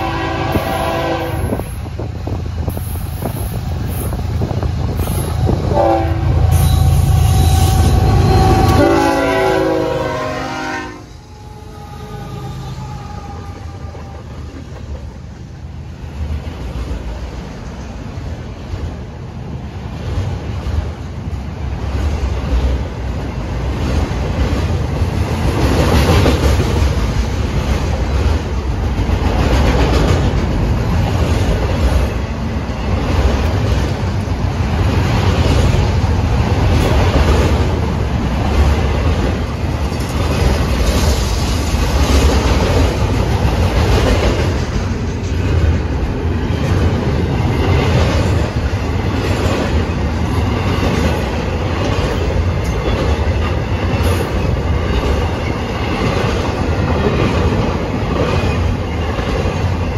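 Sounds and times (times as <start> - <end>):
freight train wheels rumbling: 0.0 - 59.9
wheels clickety-clack: 13.6 - 15.4, 20.0 - 59.9.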